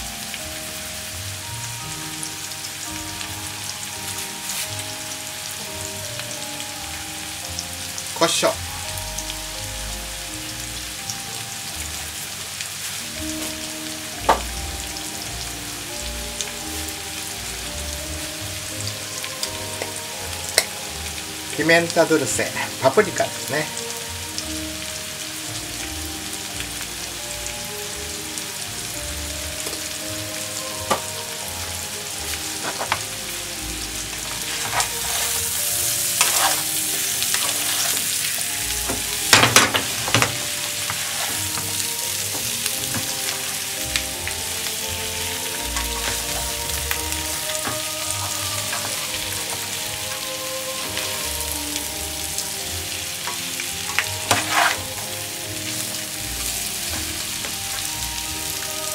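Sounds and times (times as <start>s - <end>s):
food sizzling in a frying pan: 0.0s - 58.9s
spatula knocking and scraping pan: 36.2s - 38.0s, 54.3s - 54.8s.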